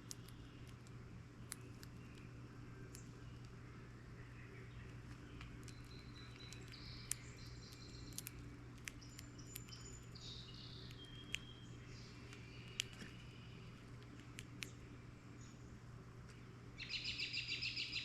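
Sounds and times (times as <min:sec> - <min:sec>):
sharp clicks: 0:00.0 - 0:03.6, 0:05.0 - 0:10.2, 0:10.8 - 0:11.5, 0:12.2 - 0:14.8
birds chirping: 0:00.0 - 0:15.9, 0:16.8 - 0:18.0
steady low hum: 0:00.0 - 0:18.0.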